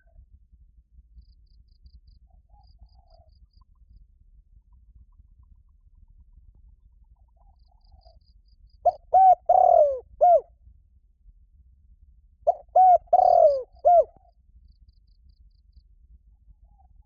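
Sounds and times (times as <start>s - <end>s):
dove cooing: 8.8s - 10.4s, 12.5s - 14.2s.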